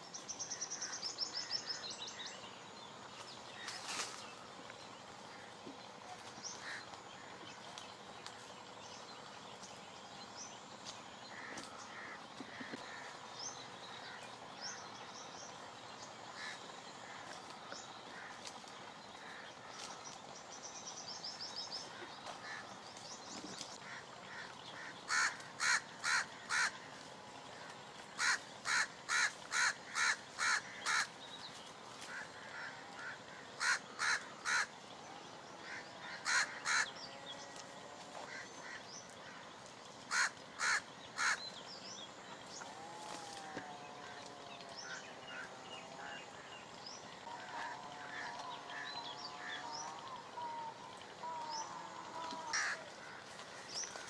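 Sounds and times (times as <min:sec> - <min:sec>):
bird harsh calls: 0:03.6 - 0:07.4, 0:21.7 - 0:34.8, 0:35.5 - 0:37.6, 0:40.1 - 0:41.8, 0:44.8 - 0:54.0.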